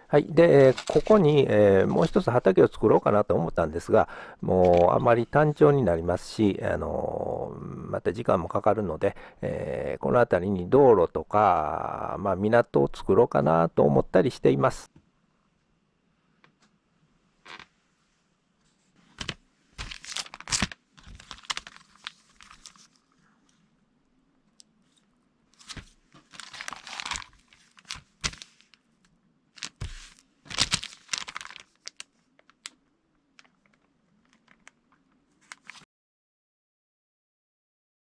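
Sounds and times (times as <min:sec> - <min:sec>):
paper rustling and crinkling: 0:00.2 - 0:02.6, 0:04.5 - 0:05.6, 0:18.7 - 0:23.2, 0:24.8 - 0:28.9, 0:29.5 - 0:32.8, 0:33.4 - 0:35.9.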